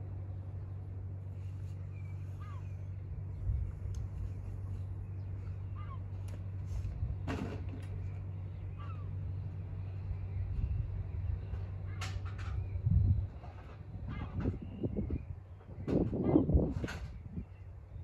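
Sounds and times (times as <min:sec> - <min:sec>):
steady low rumble: 0:00.0 - 0:18.0
short bird calls: 0:01.7 - 0:03.1, 0:05.2 - 0:06.3, 0:08.5 - 0:09.2.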